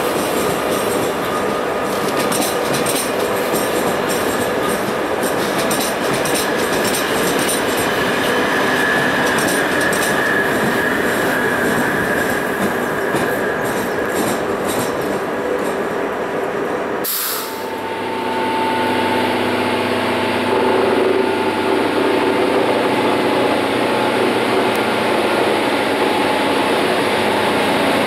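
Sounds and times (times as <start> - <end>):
wheels clicking on rail: 0.0 - 8.0, 8.7 - 16.0
train rumbling past: 0.0 - 28.0.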